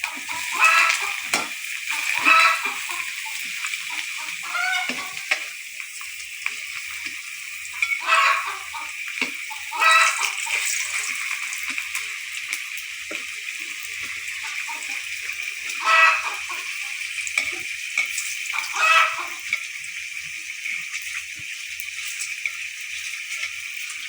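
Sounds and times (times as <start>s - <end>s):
chickens clucking: 0.0s - 5.6s, 6.6s - 19.8s
cooking hiss: 0.0s - 24.0s.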